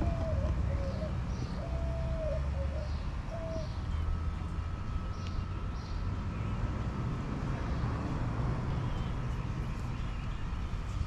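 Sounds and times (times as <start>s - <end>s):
bird chirping: 0.0s - 6.6s
engine running steadily: 0.0s - 11.0s.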